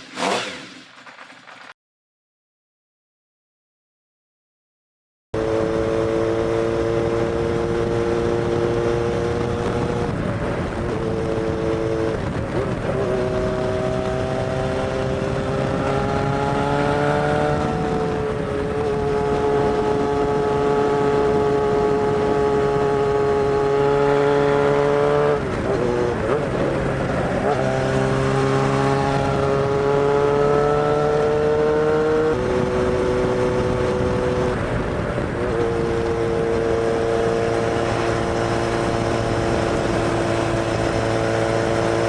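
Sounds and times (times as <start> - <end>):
motorcycle engine running: 25.1 - 42.0.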